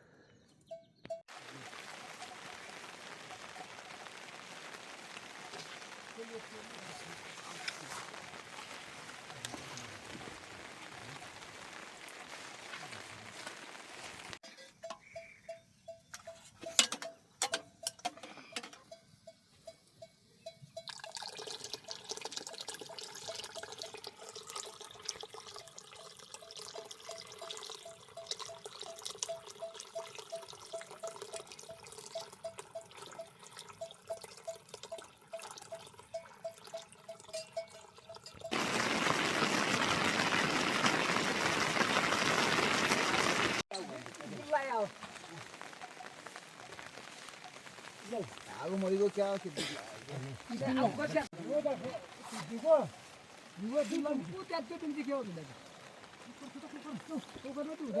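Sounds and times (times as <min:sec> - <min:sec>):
water dripping: 0:00.7 - 0:15.3, 0:16.0 - 0:58.0
heavy rain hissing: 0:01.3 - 0:14.4, 0:38.5 - 0:58.0.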